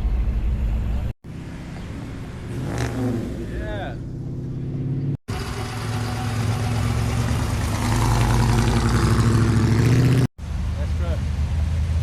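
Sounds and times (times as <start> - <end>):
car engine running: 4.0 - 10.3.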